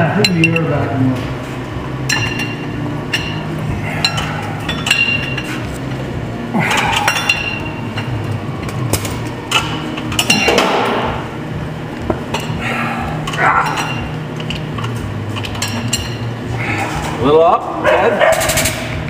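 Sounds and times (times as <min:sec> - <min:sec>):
steady low hum: 0:00.0 - 0:19.0
metal tools clinking: 0:02.1 - 0:05.6, 0:06.7 - 0:08.2, 0:13.2 - 0:16.3.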